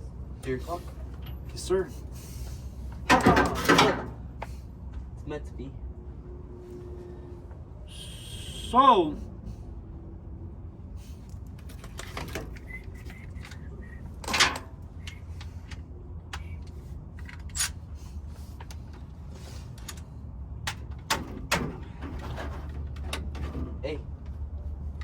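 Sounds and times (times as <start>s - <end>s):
metal tools clinking and knocking: 14.2s - 15.8s.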